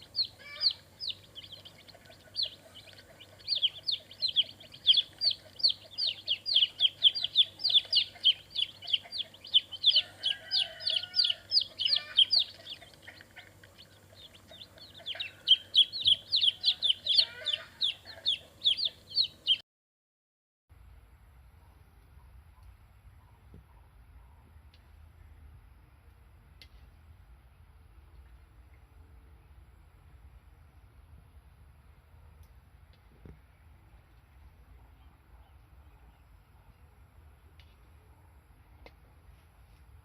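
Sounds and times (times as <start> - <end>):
birds chirping: 0.0 - 19.6
lower bird calls: 0.0 - 19.6.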